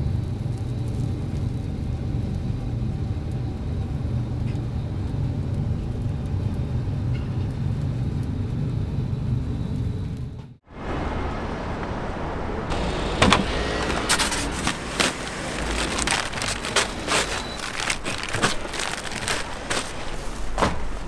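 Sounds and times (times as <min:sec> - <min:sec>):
road traffic: 0:10.7 - 0:21.0.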